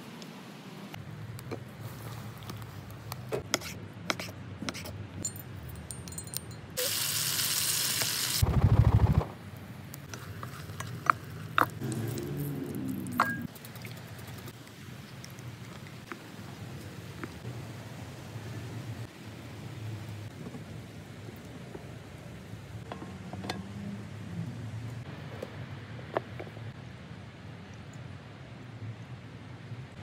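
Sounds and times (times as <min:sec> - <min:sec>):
utensils clinking on pots: 0:05.2 - 0:06.9, 0:13.1 - 0:13.5
chicken sizzling in pot: 0:06.8 - 0:08.4.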